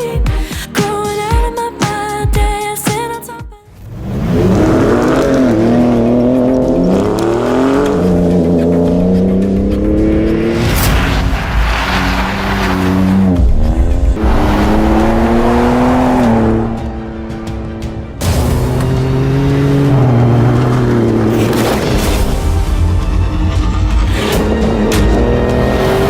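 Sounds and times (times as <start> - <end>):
pop music: 0.0 - 3.6, 22.2 - 26.0
car engine revving: 3.8 - 26.0.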